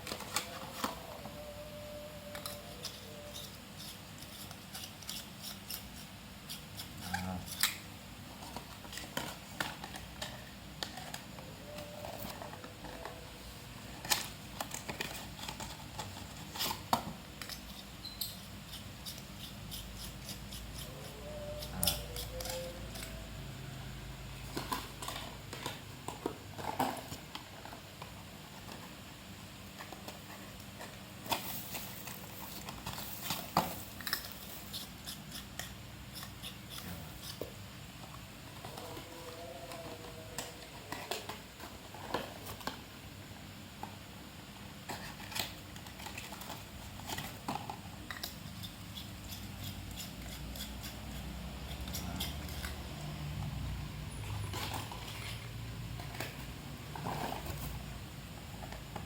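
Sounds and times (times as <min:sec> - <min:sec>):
handling cardboard and plastic packaging: 0:00.0 - 0:06.0, 0:08.3 - 0:18.1, 0:20.9 - 0:35.0, 0:51.4 - 0:59.0.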